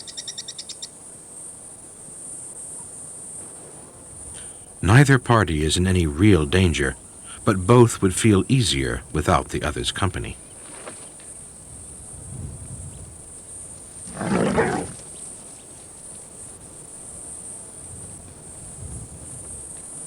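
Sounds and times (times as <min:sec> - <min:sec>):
faint low background noise: 0:00.3 - 0:18.7
lion growling: 0:14.0 - 0:15.1.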